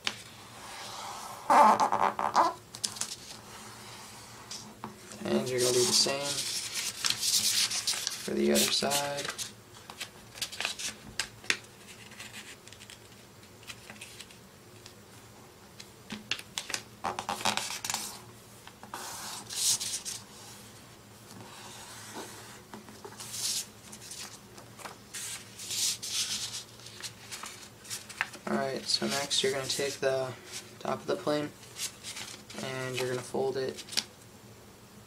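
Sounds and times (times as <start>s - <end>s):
paper rustling: 4.5s - 14.4s, 21.4s - 30.7s, 31.6s - 34.1s
paper rubbing swishes: 5.4s - 9.5s, 25.1s - 28.3s.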